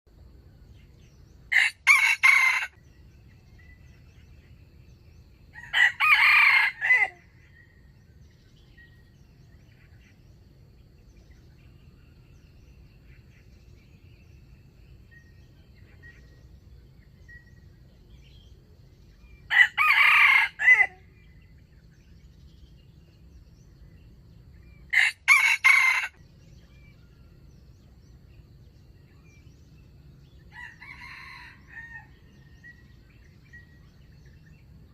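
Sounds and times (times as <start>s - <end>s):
rooster crowing: 1.5s - 2.9s, 5.5s - 7.3s, 19.5s - 21.1s, 24.9s - 26.2s, 30.5s - 32.4s.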